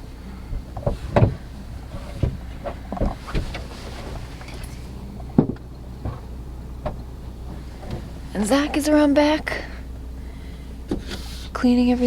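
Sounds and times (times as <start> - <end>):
car engine hum inside cabin: 0.0 - 12.0
knocks and thumps on car body: 0.5 - 4.5, 5.3 - 8.1.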